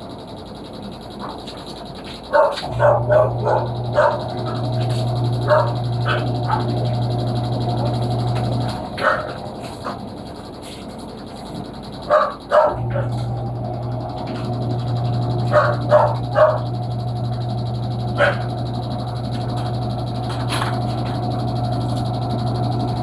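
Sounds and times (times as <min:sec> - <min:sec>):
steady low hum: 0:02.2 - 0:23.0
dog barking: 0:02.3 - 0:07.0, 0:08.9 - 0:10.0, 0:12.0 - 0:13.2, 0:15.3 - 0:16.8, 0:18.1 - 0:18.6.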